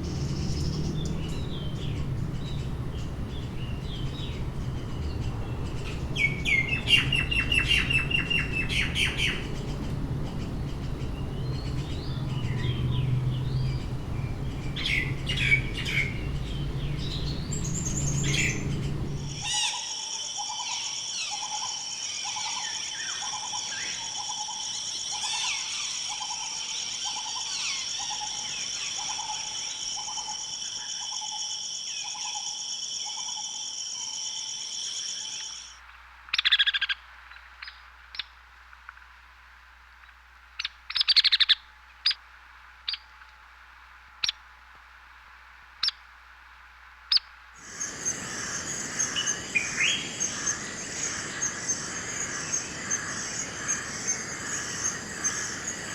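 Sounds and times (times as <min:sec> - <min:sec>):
low rumble: 0:00.0 - 0:19.5
birds chirping and trilling: 0:00.0 - 0:20.0, 0:47.6 - 0:55.9.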